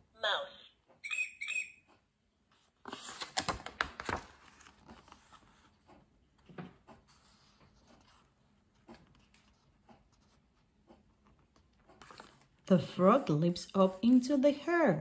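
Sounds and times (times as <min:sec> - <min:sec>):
paper page turning: 0:02.5 - 0:05.8, 0:11.5 - 0:12.6.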